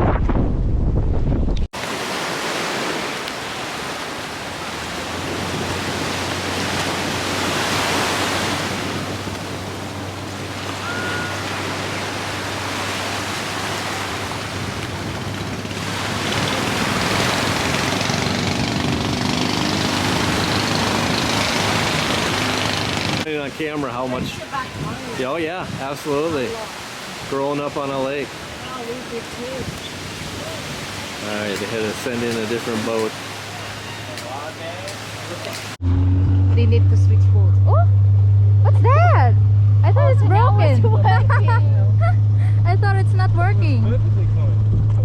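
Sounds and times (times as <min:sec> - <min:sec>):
wind blowing on microphone: 0:00.0 - 0:02.0, 0:21.9 - 0:27.4, 0:28.3 - 0:31.2, 0:43.5 - 0:45.0
sea water rushing past boat: 0:01.2 - 0:35.8
loud low rumble: 0:35.8 - 0:45.0
steady low hum: 0:35.8 - 0:45.0.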